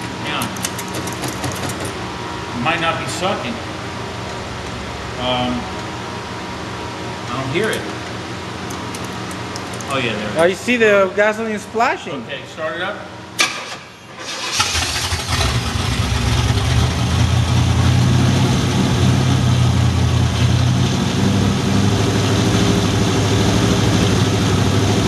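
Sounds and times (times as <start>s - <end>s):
car engine starting and running: 13.4s - 25.0s.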